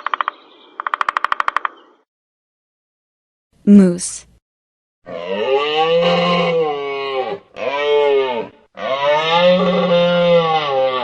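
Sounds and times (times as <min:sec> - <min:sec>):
moose moaning calls: 0:05.1 - 0:11.0.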